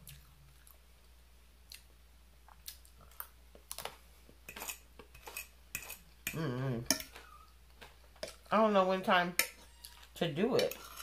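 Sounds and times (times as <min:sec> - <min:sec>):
person chewing salad: 0:00.0 - 0:06.3.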